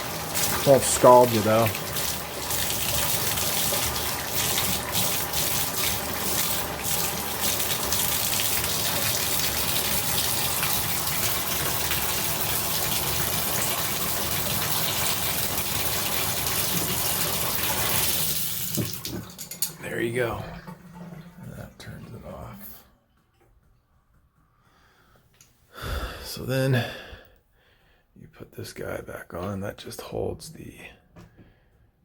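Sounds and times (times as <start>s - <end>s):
shower water running: 0.0s - 22.8s.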